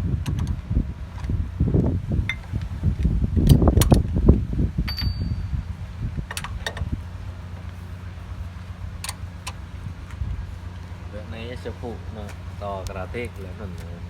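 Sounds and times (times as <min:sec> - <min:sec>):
steady low hum: 0:00.0 - 0:14.0
metallic ring: 0:04.9 - 0:05.7.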